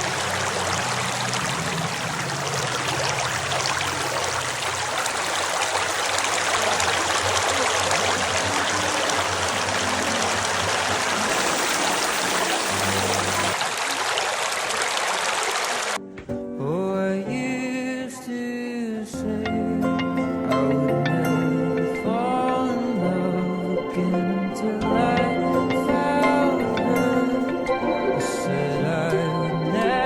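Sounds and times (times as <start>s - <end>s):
cave waterfall rushing: 0.0s - 16.0s.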